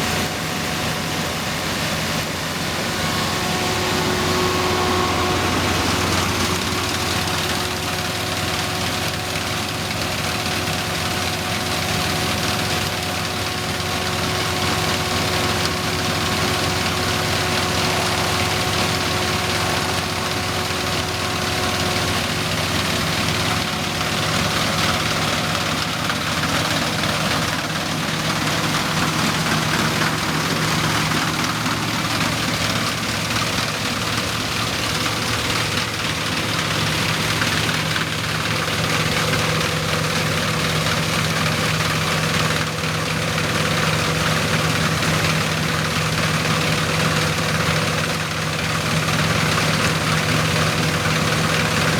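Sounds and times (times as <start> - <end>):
thin steady whine: 0.0 - 9.9, 13.7 - 44.1
diesel engine running: 0.0 - 51.9
threshing machinery clatter: 2.8 - 51.9.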